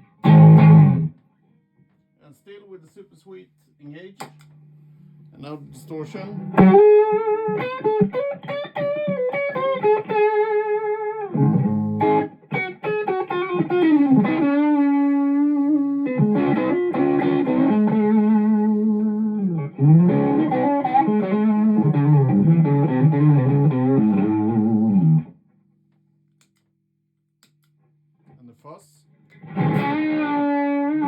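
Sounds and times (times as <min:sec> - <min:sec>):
distorted electric guitar: 0:00.0 - 0:01.2, 0:06.3 - 0:25.4, 0:29.3 - 0:31.0.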